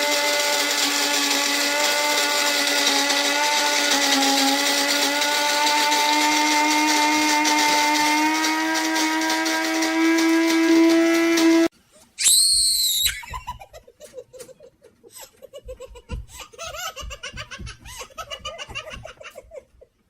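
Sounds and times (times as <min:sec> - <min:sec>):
child squealing: 0:12.2 - 0:13.6
child laughing: 0:13.0 - 0:20.0.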